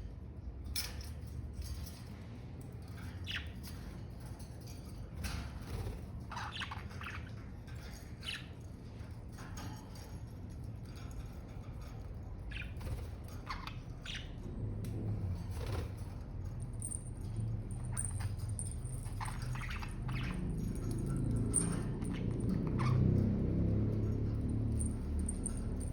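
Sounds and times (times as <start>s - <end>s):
steady low hum: 0.0s - 25.9s
budgerigars chirping: 12.5s - 14.5s, 17.8s - 23.3s.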